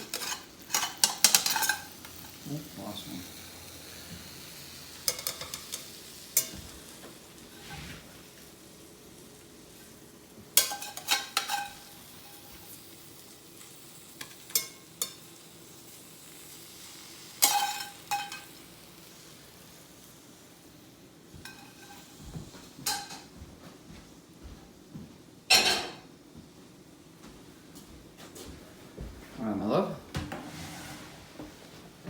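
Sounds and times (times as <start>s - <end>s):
oysters sizzling on a grill: 0.0s - 23.3s.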